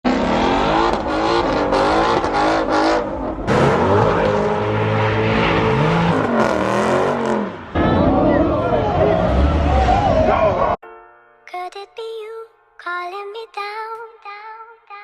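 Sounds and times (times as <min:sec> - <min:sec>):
car engine revving: 0:00.1 - 0:10.8.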